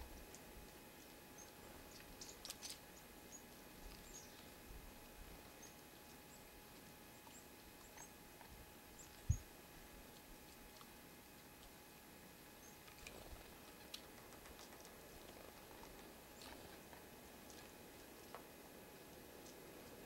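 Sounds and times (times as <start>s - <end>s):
small birds chirping: 0.0s - 4.6s, 5.4s - 9.6s, 12.6s - 13.5s, 14.3s - 16.8s.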